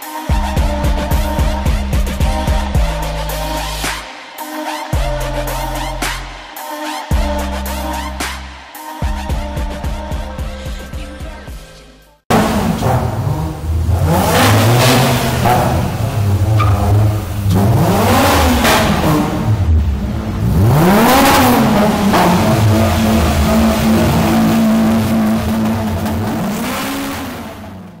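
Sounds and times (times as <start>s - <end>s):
car engine revving: 12.3s - 28.0s.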